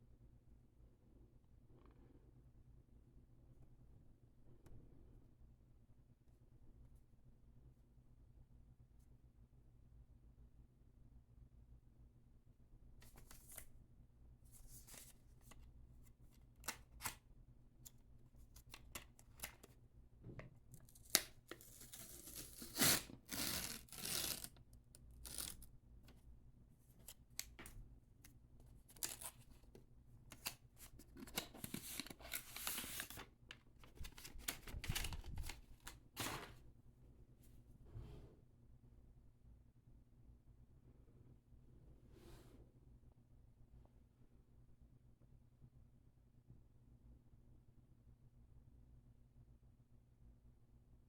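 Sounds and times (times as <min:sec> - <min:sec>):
packaging tearing: 0:21.0 - 0:25.7, 0:28.9 - 0:29.4, 0:30.3 - 0:33.2.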